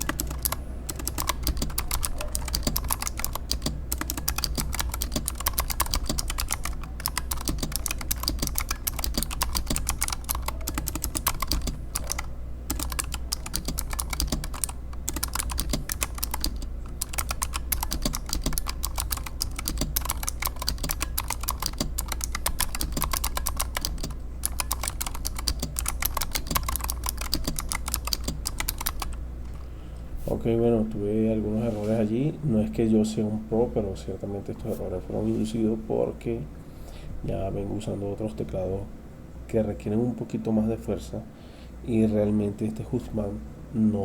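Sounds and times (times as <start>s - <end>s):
keyboard key clicks: 0.0s - 29.2s.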